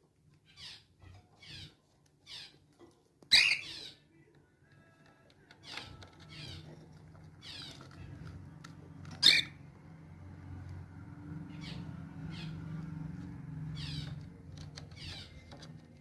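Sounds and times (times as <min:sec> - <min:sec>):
cockatiel chirping: 0:03.3 - 0:04.0, 0:09.2 - 0:09.6
shrill cockatiel call: 0:03.3 - 0:04.0.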